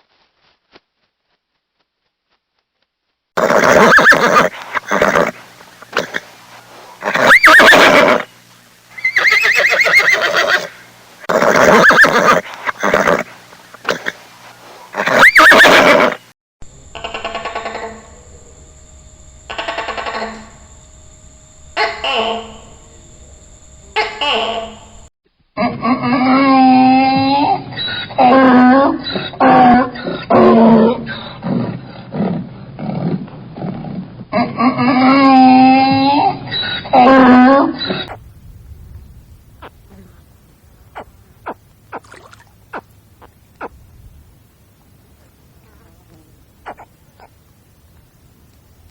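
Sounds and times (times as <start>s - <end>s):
horse neighing: 3.4s - 6.3s, 7.0s - 8.3s, 9.0s - 14.2s, 14.9s - 16.2s
animal pitched calls: 3.4s - 8.3s, 8.9s - 18.3s, 19.5s - 20.6s, 40.9s - 43.8s, 45.6s - 47.4s
animal grunts: 12.4s - 14.2s.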